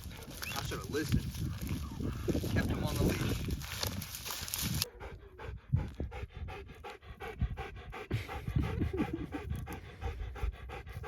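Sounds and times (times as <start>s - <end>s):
dog panting rapidly: 4.8s - 11.0s.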